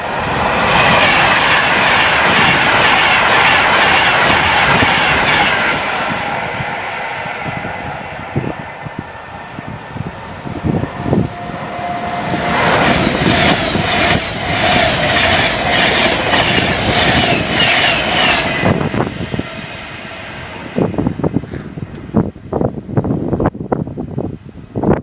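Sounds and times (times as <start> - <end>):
clickety-clack of wheels on rail joints: 0.0 - 9.0, 12.2 - 20.0
train wheels rushing: 0.0 - 22.3
steady train whine: 0.0 - 25.0.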